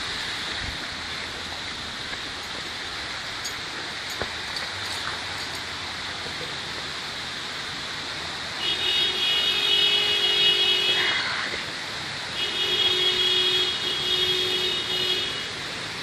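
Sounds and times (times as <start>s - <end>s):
car horn blasts: 12.4s - 15.5s.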